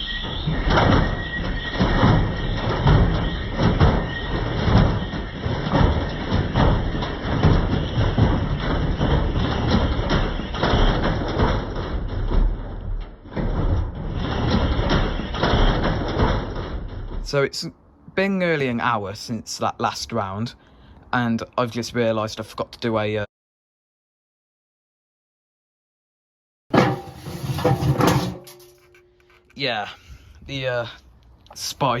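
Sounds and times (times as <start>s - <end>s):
washing machine drum knocking: 0.3s - 17.2s, 26.7s - 28.8s.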